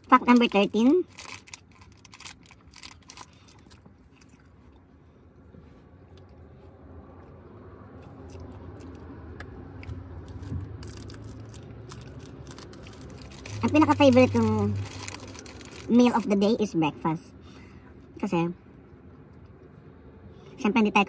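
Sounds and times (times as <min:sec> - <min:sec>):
person chewing: 0:01.2 - 0:05.0, 0:07.1 - 0:13.6.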